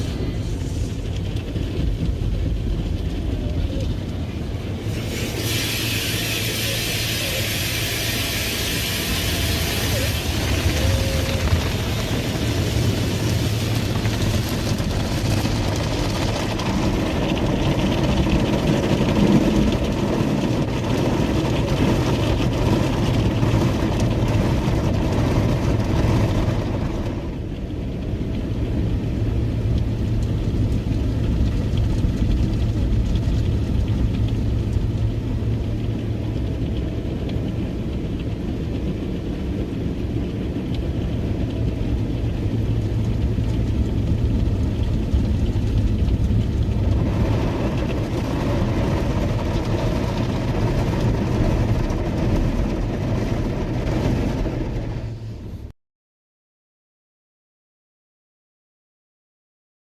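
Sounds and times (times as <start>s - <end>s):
spraying water hiss: 4.8s - 13.8s.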